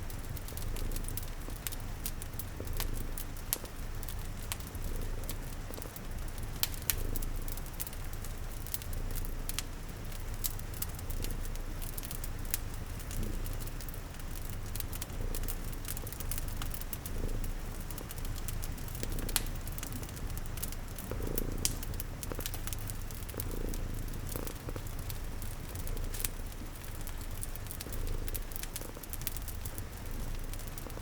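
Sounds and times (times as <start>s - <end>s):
cat purring: 0.0s - 31.0s
wood fire crackling: 0.0s - 31.0s
rain hiss: 12.2s - 31.0s.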